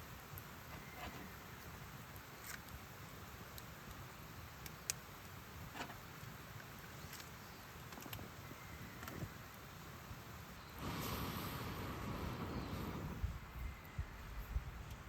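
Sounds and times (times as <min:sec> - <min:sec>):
faint clicks and ticks: 0:03.4 - 0:04.0, 0:04.6 - 0:08.3
steady low rumble: 0:10.8 - 0:15.0.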